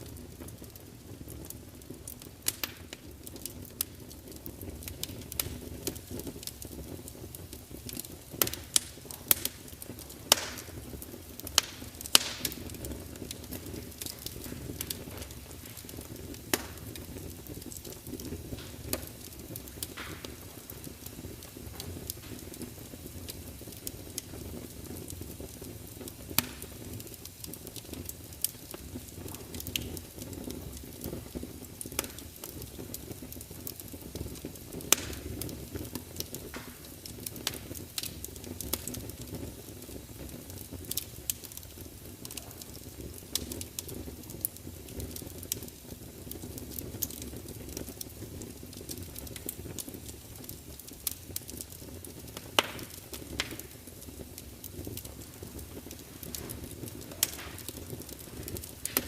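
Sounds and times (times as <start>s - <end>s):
wood fire crackling: 0.0s - 59.0s
logs popping and snapping: 10.3s - 10.7s, 14.0s - 16.8s, 52.6s - 53.7s, 55.2s - 59.0s.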